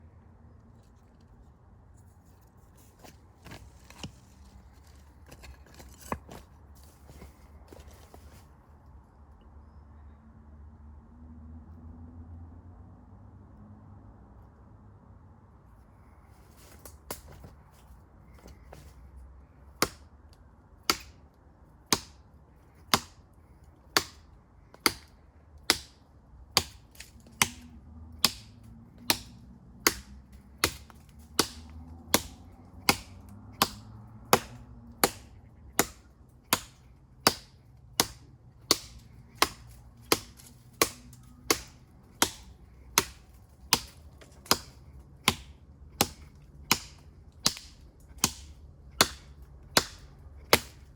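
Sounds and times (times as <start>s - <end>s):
knife chopping into tree trunk: 19.8s - 20.1s, 20.9s - 21.2s, 21.9s - 22.2s, 22.9s - 23.2s, 24.0s - 24.2s, 24.8s - 25.1s, 25.7s - 26.0s, 26.6s - 50.9s.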